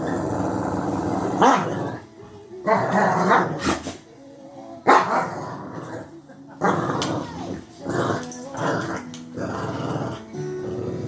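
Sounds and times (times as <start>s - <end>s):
dog growling and barking: 0.0s - 4.0s, 4.8s - 11.0s.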